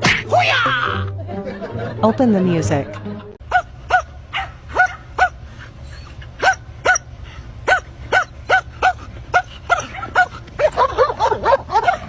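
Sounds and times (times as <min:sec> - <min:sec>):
small dog barking: 0:03.5 - 0:05.4, 0:06.4 - 0:07.1, 0:07.7 - 0:12.0.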